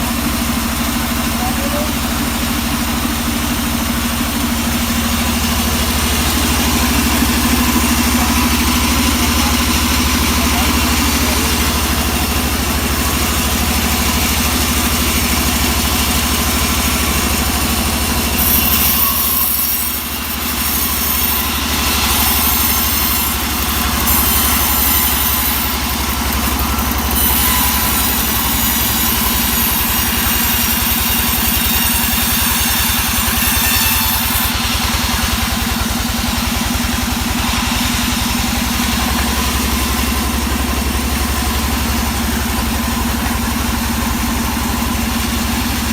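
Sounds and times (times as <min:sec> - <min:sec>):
saw cutting wood hissing: 0:00.0 - 0:45.9
saw engine running: 0:00.0 - 0:45.9.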